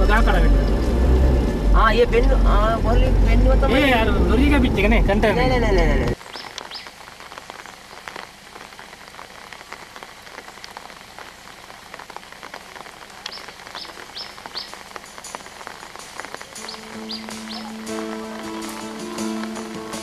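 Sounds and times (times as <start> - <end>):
rain pattering: 0.0 - 20.0
bird chirps: 6.2 - 7.0, 13.3 - 15.5, 16.2 - 18.0.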